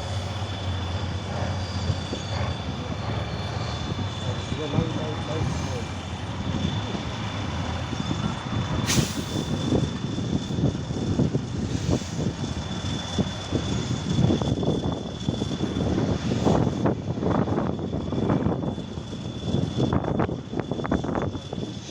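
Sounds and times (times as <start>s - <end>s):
diesel truck engine working hard: 0.0s - 21.9s
steady high whine: 0.0s - 21.9s
sharp hiss of air: 8.8s - 9.8s.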